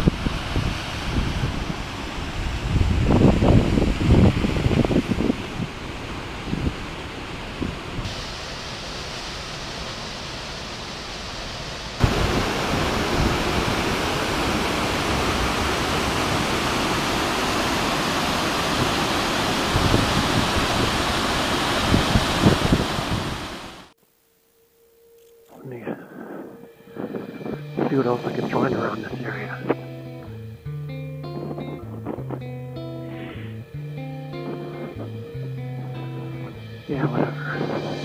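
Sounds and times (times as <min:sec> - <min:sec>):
waterfall rushing: 0:00.0 - 0:24.0, 0:32.7 - 0:38.0.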